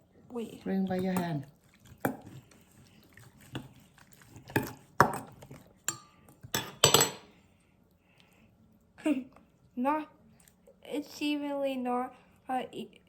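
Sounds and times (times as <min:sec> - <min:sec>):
spoon and bowl clinking: 0:03.4 - 0:07.3.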